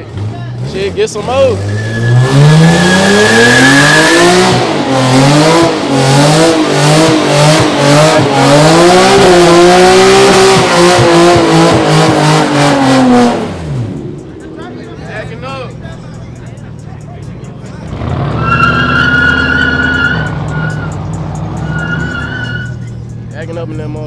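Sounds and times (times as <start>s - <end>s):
car engine at high revs: 0.0s - 14.6s, 16.4s - 23.5s
spinning tyres hissing: 0.0s - 23.4s.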